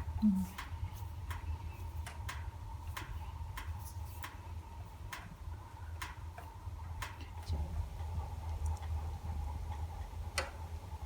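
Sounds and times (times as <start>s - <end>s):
low fire rumble: 0.0s - 11.0s.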